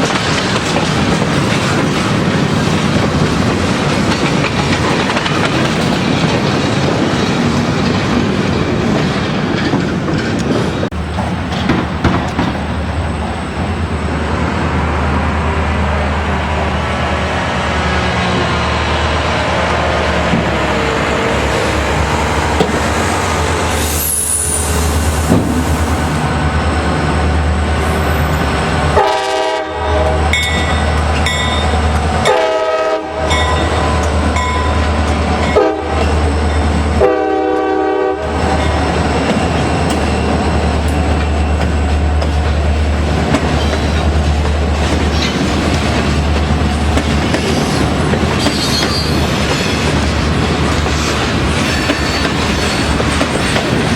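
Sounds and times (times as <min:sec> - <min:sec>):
train rumbling on track: 0:00.0 - 0:53.9
train air horn chord: 0:29.0 - 0:30.4, 0:32.3 - 0:33.4, 0:35.6 - 0:36.0, 0:37.0 - 0:38.3.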